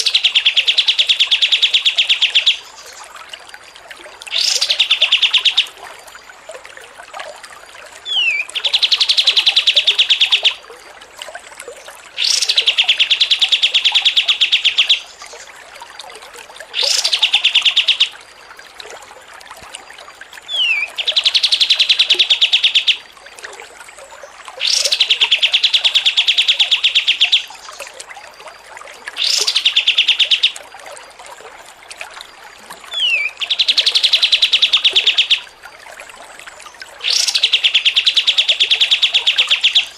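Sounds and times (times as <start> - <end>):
songbird chattering trill: 37.1 - 39.9.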